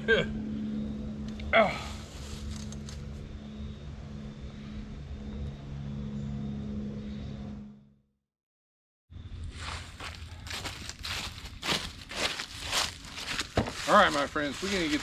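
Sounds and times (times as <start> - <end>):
distant engine droning: 0.0 - 8.0.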